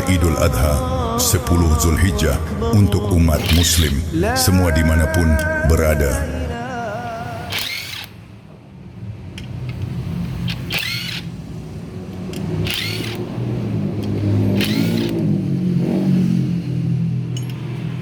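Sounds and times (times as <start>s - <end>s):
engine revving: 0.0s - 5.1s, 7.3s - 8.3s, 8.9s - 18.0s
high-pitched squealing bursts: 3.1s - 5.3s, 7.2s - 8.3s, 10.4s - 11.3s, 12.6s - 13.3s, 14.2s - 15.3s.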